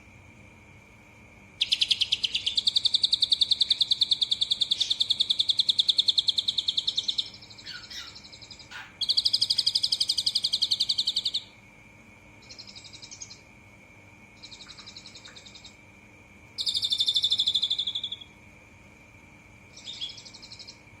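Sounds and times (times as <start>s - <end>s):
faint high whine: 0.0s - 21.0s
songbird trilling: 1.6s - 11.5s, 12.4s - 13.4s, 14.4s - 15.8s, 16.6s - 18.3s, 19.7s - 20.8s.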